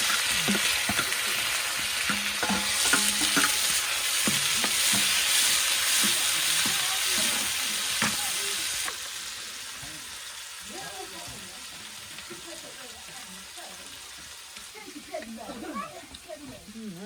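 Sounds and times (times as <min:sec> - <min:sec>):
utensil scraping and knocking pan: 0:00.0 - 0:08.2
food sizzling in hot oil: 0:00.0 - 0:17.0.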